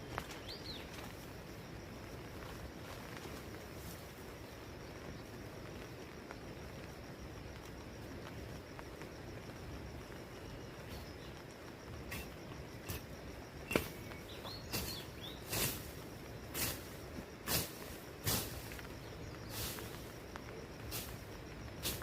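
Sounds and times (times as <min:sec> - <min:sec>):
bird chirp: 0:00.0 - 0:01.1, 0:13.6 - 0:15.6
faint high insect trill: 0:00.0 - 0:22.0.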